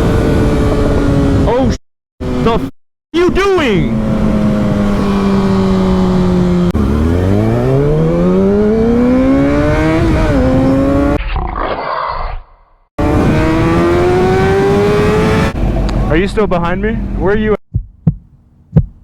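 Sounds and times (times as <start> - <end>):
motorcycle engine accelerating: 0.0 - 1.6, 2.2 - 2.6, 3.2 - 11.2, 13.0 - 16.1
wind noise rushing: 13.0 - 15.8.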